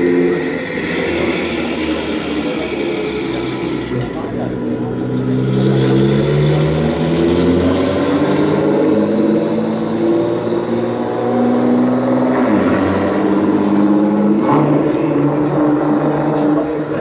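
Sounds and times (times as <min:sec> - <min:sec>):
loud car engine revving: 0:00.0 - 0:17.0.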